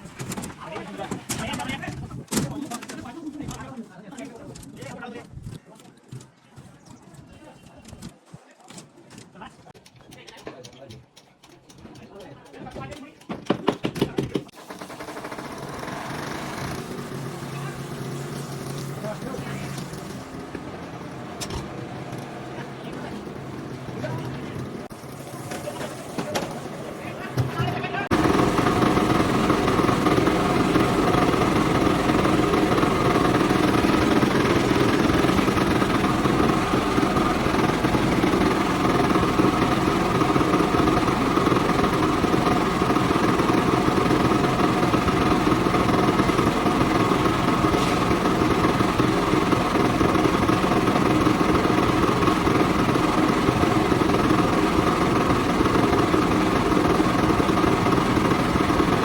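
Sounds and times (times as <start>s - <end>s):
engine-driven machinery running: 14.5s - 59.0s.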